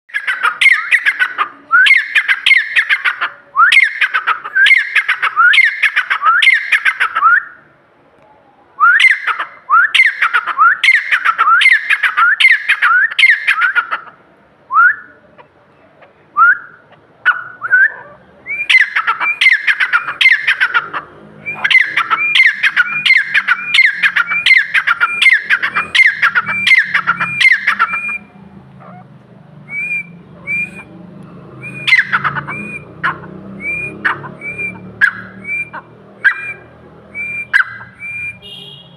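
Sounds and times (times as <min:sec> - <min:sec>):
francolin calling: 0:17.3 - 0:29.1, 0:31.6 - 0:38.8.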